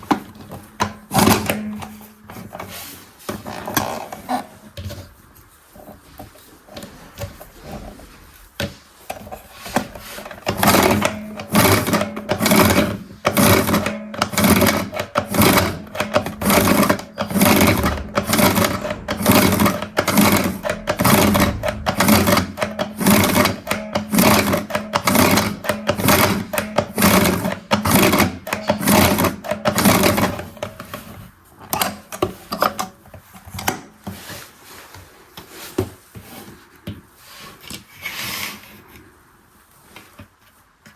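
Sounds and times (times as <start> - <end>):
toy washing machine whirring: 8.6 - 32.8
steady low hum: 15.1 - 25.9.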